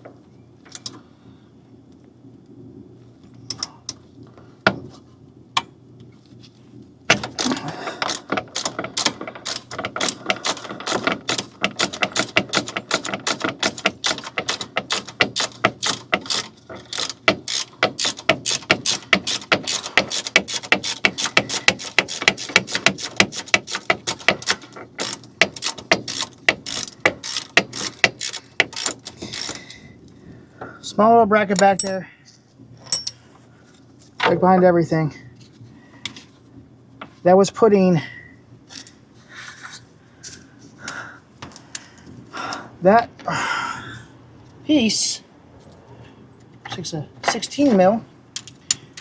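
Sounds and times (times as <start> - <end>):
ratchet wrench clicking: 8.0 - 29.7.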